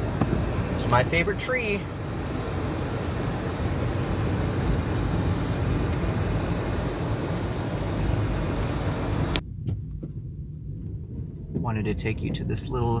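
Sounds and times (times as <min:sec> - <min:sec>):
defroster fan blowing: 0:00.0 - 0:09.4
car engine running: 0:00.0 - 0:13.0
rushing noise inside car: 0:00.0 - 0:13.0.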